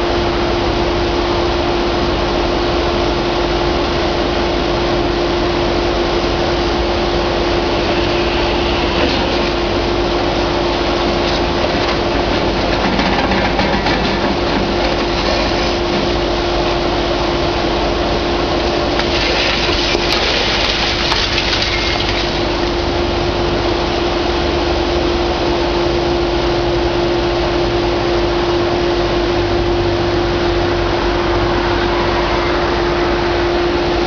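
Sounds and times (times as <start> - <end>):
excavator diesel engine whining: 0.0 - 34.0
harsh debris noise: 7.6 - 17.2, 18.8 - 23.0.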